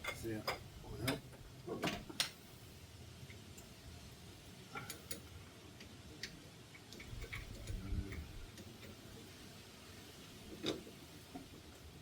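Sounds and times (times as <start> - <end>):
hand tools and metal parts clicking: 4.7 - 9.0.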